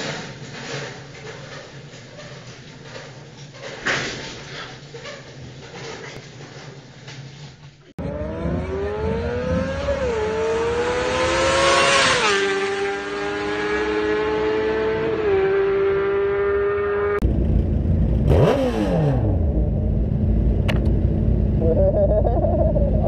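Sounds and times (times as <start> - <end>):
vehicle passing: 8.0 - 19.4
motorcycle engine accelerating: 8.0 - 23.0
traffic rumble: 8.0 - 23.0.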